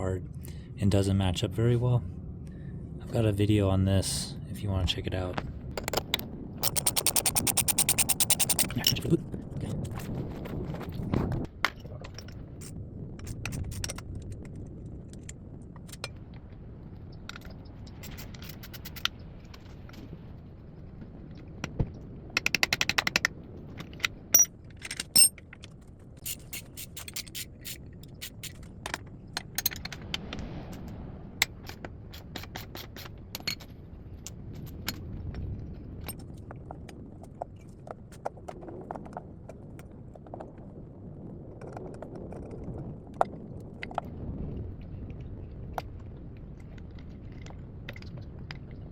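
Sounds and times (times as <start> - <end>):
rapid even clicking: 5.8 - 9.0
metal tools clinking and scraping: 6.6 - 9.1, 24.4 - 25.4.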